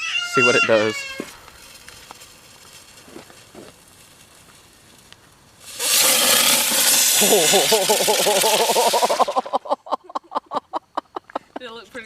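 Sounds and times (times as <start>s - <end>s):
firework spraying with hiss: 0.0s - 9.6s.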